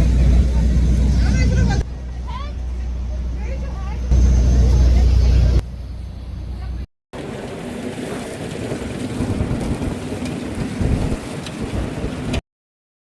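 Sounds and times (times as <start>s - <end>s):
waterfall roaring: 7.2s - 12.4s.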